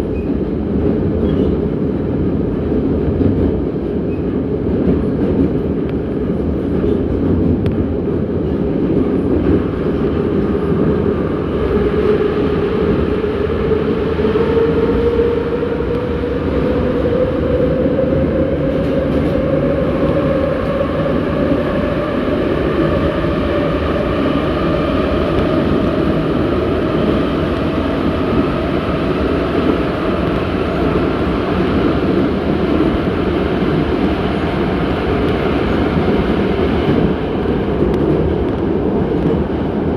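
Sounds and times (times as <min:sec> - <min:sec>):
metro train wheel and rail noise: 0:00.0 - 0:39.9.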